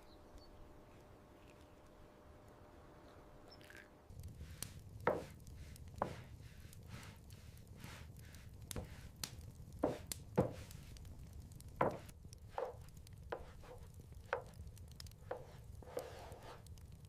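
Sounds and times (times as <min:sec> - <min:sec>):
blade chopping on a board: 0:11.8 - 0:14.6.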